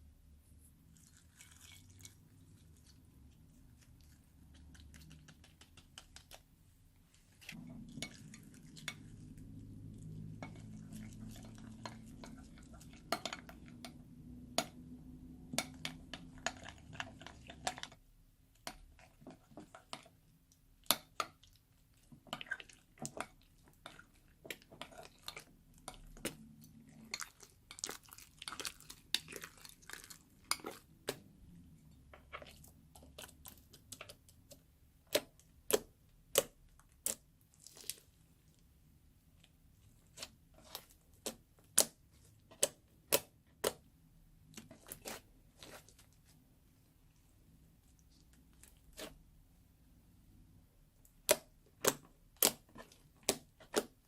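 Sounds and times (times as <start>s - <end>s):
hands squishing slime: 20.8s - 38.6s, 39.4s - 46.3s, 51.1s - 54.0s.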